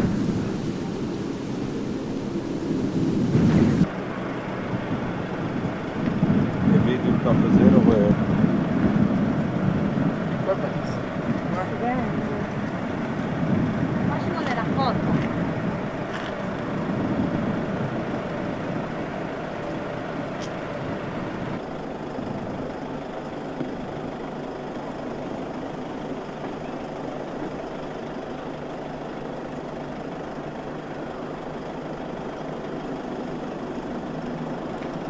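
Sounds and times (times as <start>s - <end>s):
wind noise: 0.0s - 26.7s
distant turboprop engines droning: 0.0s - 35.0s.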